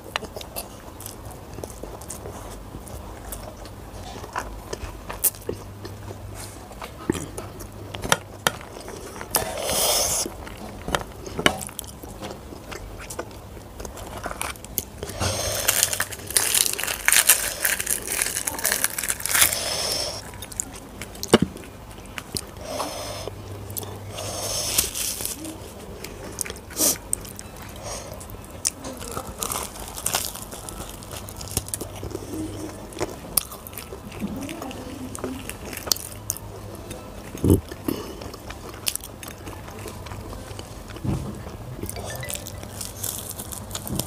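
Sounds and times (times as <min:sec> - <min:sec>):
chewing and mouth noises: 0:00.0 - 0:44.0
crunchy bursts: 0:15.0 - 0:20.5.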